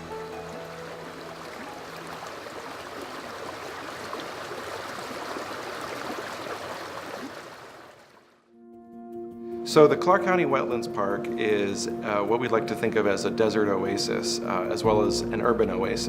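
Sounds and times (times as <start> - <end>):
soft background music: 0.0 - 3.0, 8.5 - 16.0
gurgling stream: 0.0 - 8.4.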